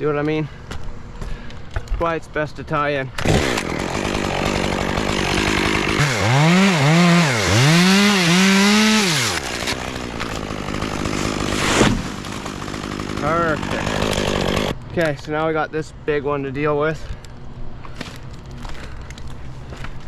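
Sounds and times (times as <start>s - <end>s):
chainsaw cutting wood: 3.2s - 14.8s.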